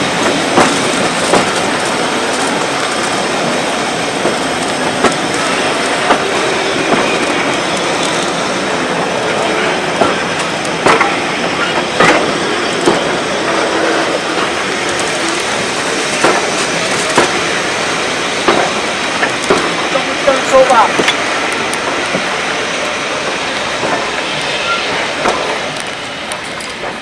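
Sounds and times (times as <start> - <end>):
train rolling rumble: 0.0 - 27.0
wheels clicking over rail joints: 0.0 - 27.0
faint wheel squeal: 24.0 - 25.6.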